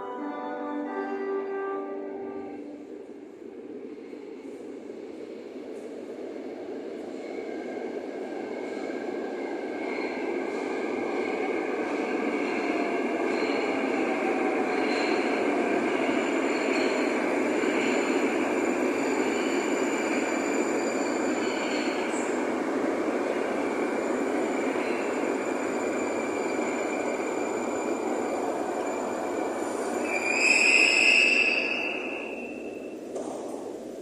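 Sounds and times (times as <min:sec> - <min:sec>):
metro train rumbling: 0:00.0 - 0:34.0.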